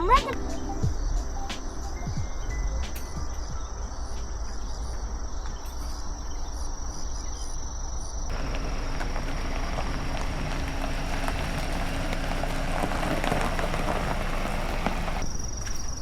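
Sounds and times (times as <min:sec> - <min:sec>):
insects trilling: 0:00.0 - 0:16.0
low background rumble: 0:08.3 - 0:15.2.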